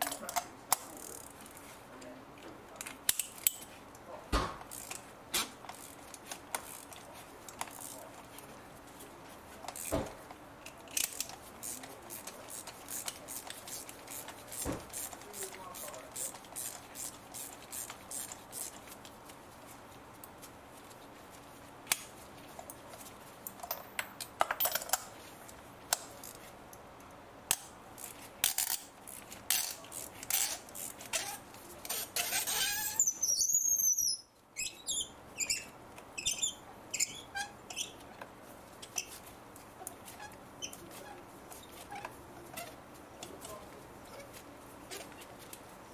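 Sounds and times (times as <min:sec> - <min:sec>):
short squeak: 0:31.2 - 0:38.0.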